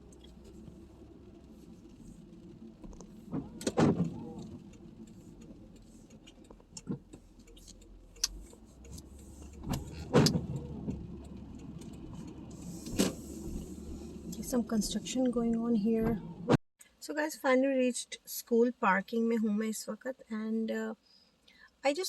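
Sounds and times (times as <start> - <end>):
engine and road hum: 0.0 - 16.6.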